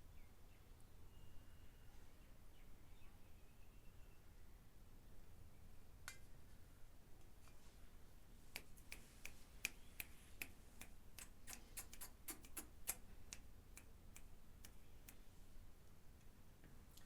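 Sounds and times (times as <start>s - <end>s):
faint sharp clicks: 8.5s - 15.2s.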